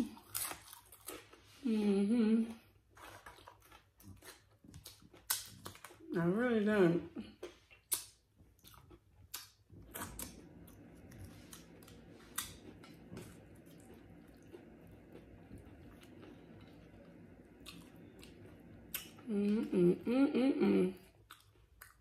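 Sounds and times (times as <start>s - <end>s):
chips being chewed and crunched: 2.9s - 6.1s.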